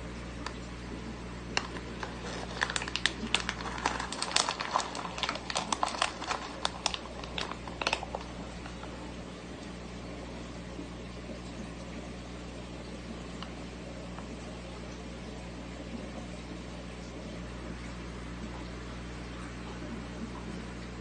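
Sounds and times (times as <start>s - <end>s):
aquarium pump hum: 0.0s - 21.0s
stingray crunching pellets: 1.5s - 9.0s.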